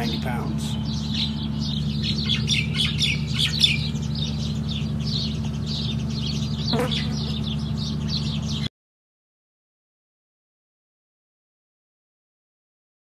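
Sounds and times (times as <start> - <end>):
small birds chirping: 0.0 - 8.7
steady low hum: 0.0 - 8.7.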